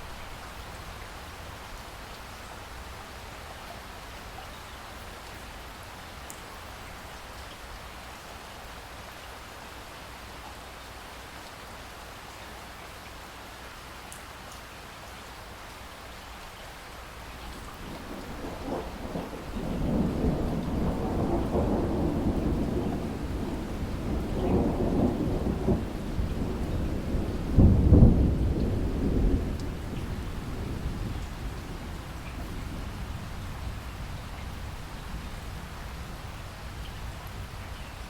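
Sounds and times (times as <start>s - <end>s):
steady rain: 0.0s - 38.0s
rolling thunder: 17.6s - 37.5s.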